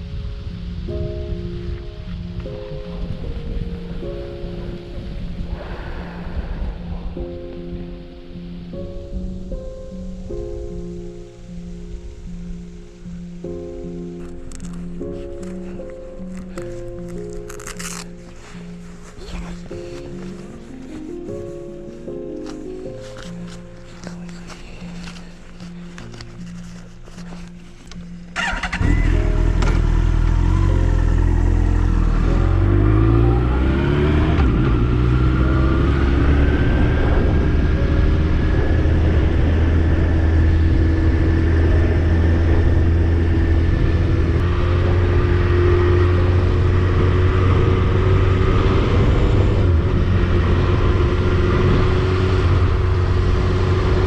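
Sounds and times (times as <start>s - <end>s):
motorcycle engine accelerating: 28.4s - 54.0s.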